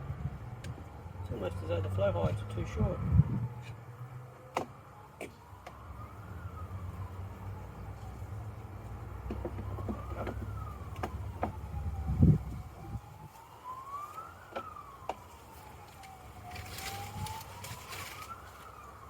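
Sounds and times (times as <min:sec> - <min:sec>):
emergency siren wailing: 0:00.0 - 0:19.0
short rustle: 0:15.5 - 0:19.0.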